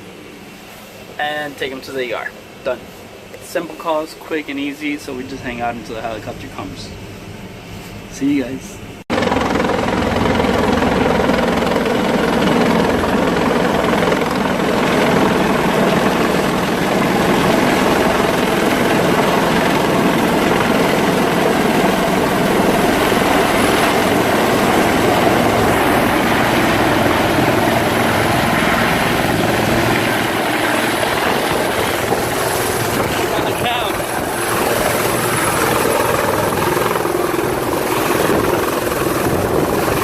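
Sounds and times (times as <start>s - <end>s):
helicopter rotor and engine: 8.2s - 40.0s.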